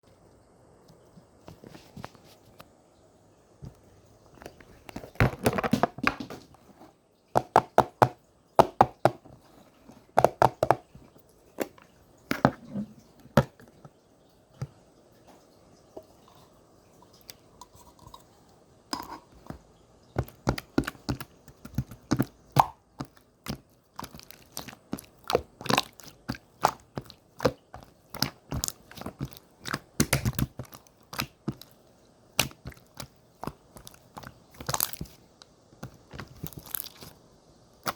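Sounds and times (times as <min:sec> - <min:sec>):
slime squished by hand: 0:20.2 - 0:35.2, 0:35.8 - 0:37.2.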